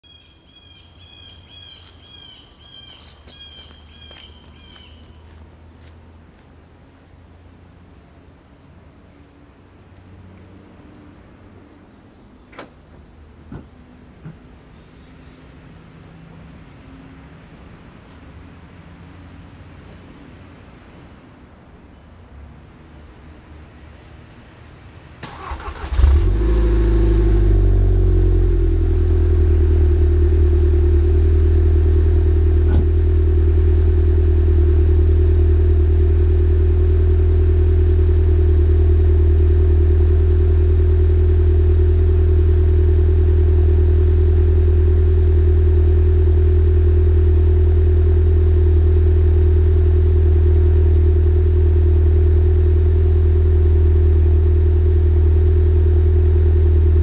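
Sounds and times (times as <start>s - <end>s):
car engine idling: 25.2s - 57.0s.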